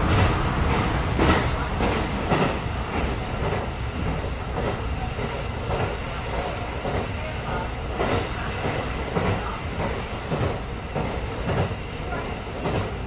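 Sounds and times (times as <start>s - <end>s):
train rumbling: 0.0s - 13.0s
wheels clacking on track: 0.0s - 13.0s.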